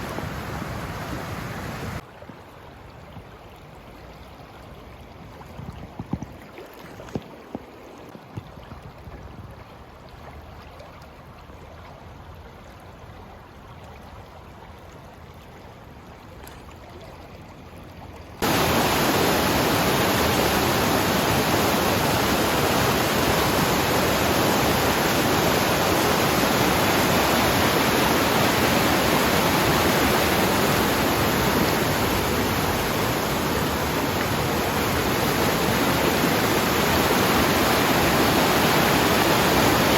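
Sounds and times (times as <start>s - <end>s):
loud rushing water: 0.0s - 2.0s, 18.4s - 39.9s
mountain river flowing: 0.0s - 2.0s, 18.4s - 39.9s.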